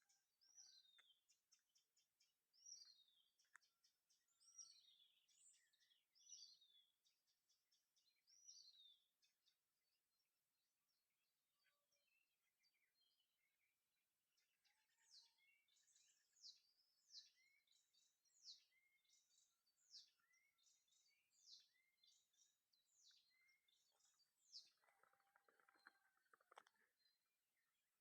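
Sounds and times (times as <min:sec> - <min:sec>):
bird chirping: 0:00.0 - 0:09.1, 0:14.4 - 0:28.0
rustling or clicking: 0:24.8 - 0:26.8.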